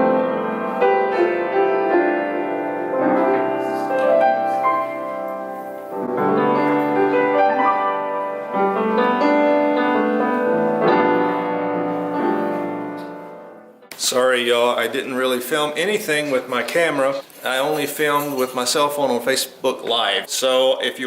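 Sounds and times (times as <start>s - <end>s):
slow piano music: 0.0s - 13.9s.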